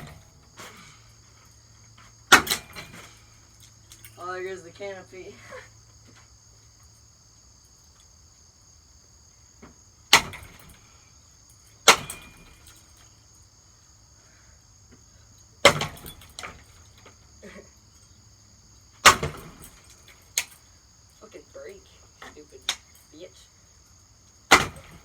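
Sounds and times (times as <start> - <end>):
loose parts rattling: 0.0 - 5.2, 11.7 - 13.2, 15.6 - 17.2
crickets chirring: 0.0 - 25.0.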